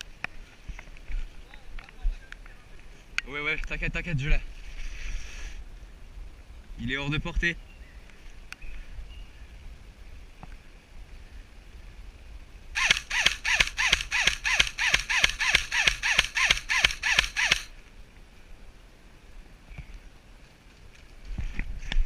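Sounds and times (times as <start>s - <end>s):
electric airsoft gun firing burst: 12.8s - 17.7s.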